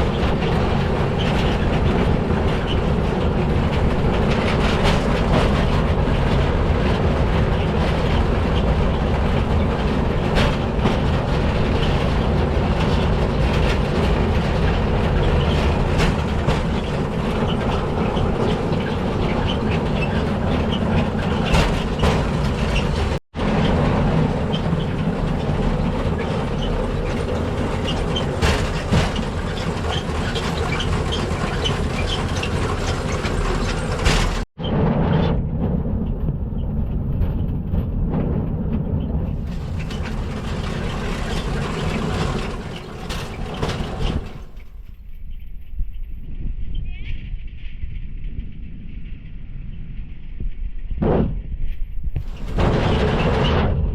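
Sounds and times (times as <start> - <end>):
clicks and clacks of wheels: 0.0 - 34.5, 36.1 - 44.9, 52.2 - 53.9
steel wheels rolling on rail track: 0.0 - 34.5, 39.2 - 44.9, 52.2 - 53.9.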